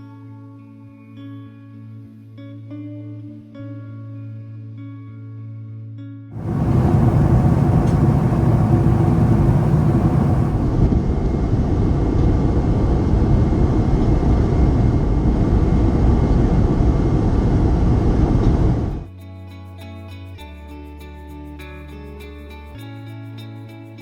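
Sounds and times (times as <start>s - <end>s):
jet engine cabin noise: 6.4s - 19.1s.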